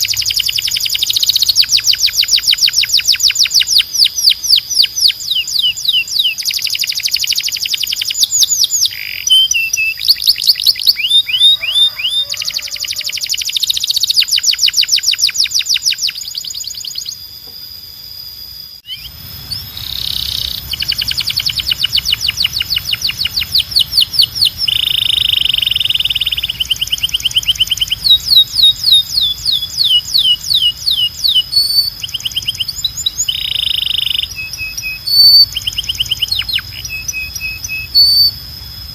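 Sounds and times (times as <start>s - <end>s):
canary singing trills: 0.0s - 38.9s
low hum: 17.4s - 33.6s.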